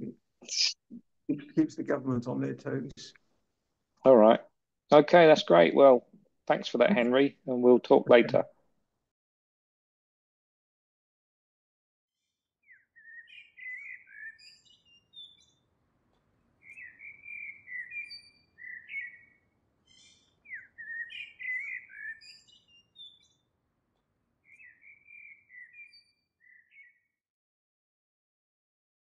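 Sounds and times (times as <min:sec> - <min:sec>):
songbird warbling: 0:12.7 - 0:15.4, 0:16.6 - 0:23.2, 0:24.5 - 0:26.9.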